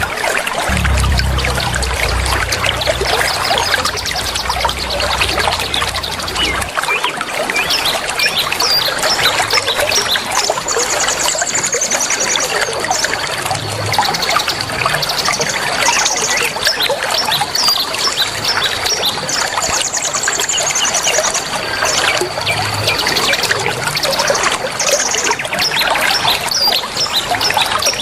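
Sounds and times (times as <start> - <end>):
high buzzy trill: 0.7 - 6.7
steady high tone: 0.7 - 6.7.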